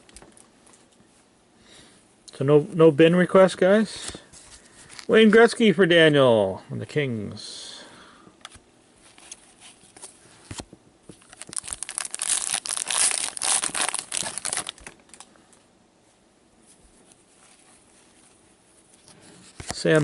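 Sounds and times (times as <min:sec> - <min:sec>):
foil wrapper tearing and crinkling: 0:11.2 - 0:15.3.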